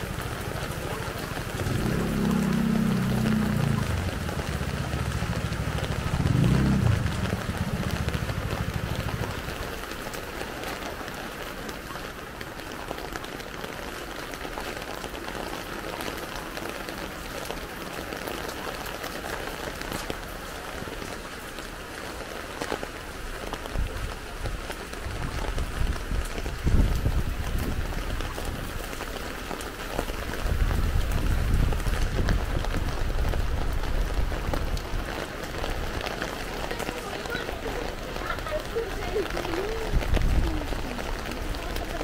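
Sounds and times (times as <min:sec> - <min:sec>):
steady rain on a street: 0:00.0 - 0:42.0
low rumble: 0:01.4 - 0:09.6.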